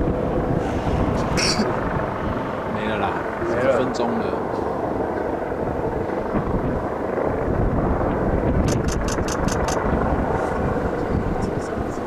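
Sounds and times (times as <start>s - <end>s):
wind on microphone: 0.0s - 3.6s, 4.7s - 12.0s
outdoor crowd din: 0.0s - 6.2s, 9.1s - 12.0s.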